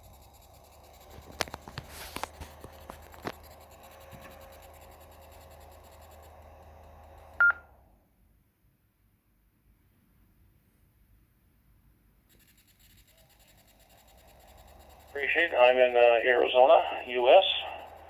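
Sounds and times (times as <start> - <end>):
scattered clicks: 0.0 - 7.6, 12.3 - 18.0
radio hiss with high whine: 0.9 - 6.4, 14.4 - 18.0.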